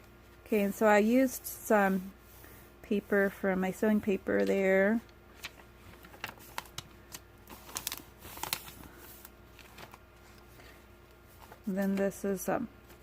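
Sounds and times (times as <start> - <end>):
paper pages rustling: 5.4 - 12.2.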